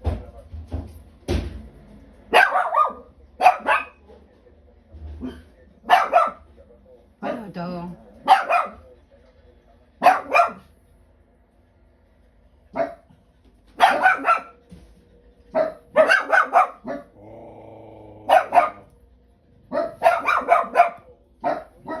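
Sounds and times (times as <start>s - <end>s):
dog barking angrily: 2.3s - 4.0s, 5.2s - 6.5s, 7.2s - 7.5s, 8.2s - 8.8s, 10.0s - 10.7s, 12.7s - 13.2s, 13.8s - 14.6s, 15.5s - 17.6s, 18.2s - 19.0s, 19.7s - 22.0s.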